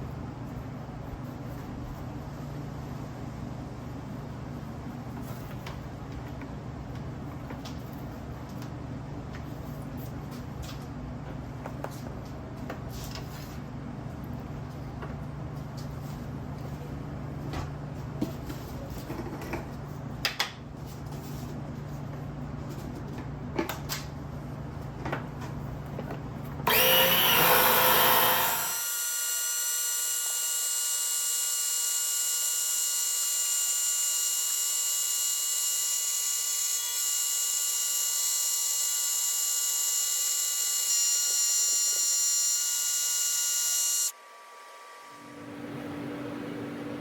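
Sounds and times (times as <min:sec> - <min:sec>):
electric pump whining: 0:26.6 - 0:45.5.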